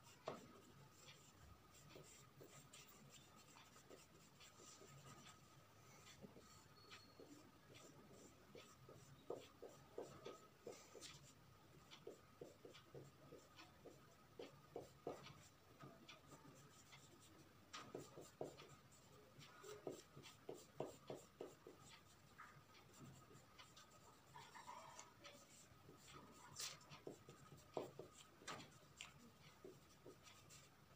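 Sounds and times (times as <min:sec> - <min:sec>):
pencil strokes scratching on paper: 0:00.0 - 0:30.9.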